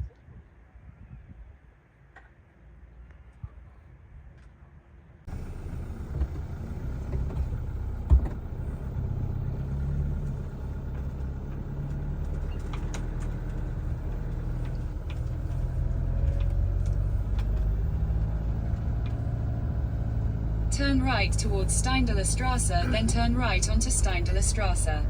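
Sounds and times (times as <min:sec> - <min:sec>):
engine and road rumble: 0:05.2 - 0:25.0
light rattles and clicks: 0:05.3 - 0:20.8.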